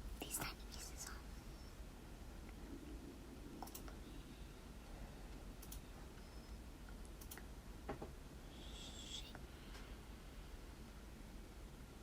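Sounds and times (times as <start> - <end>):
faint clicks and light taps: 3.6 - 4.0, 5.3 - 8.2.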